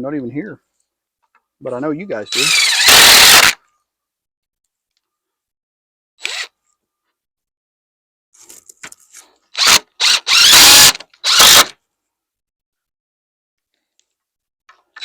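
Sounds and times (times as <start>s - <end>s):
power drill driving fasteners: 2.3s - 3.6s, 6.2s - 6.5s, 9.5s - 11.8s.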